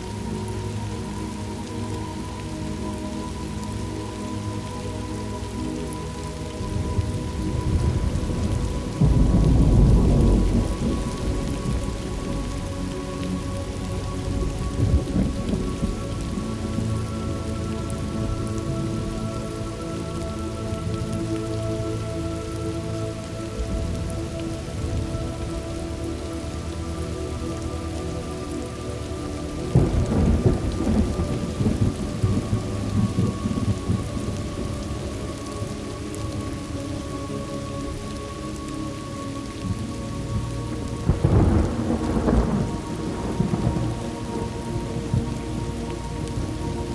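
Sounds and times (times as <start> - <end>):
steady rain: 0.0 - 46.9
thunder rumbling: 6.6 - 22.6, 23.2 - 36.7, 39.6 - 46.9
thunder rolling: 6.8 - 12.6, 29.7 - 34.8, 41.0 - 45.4.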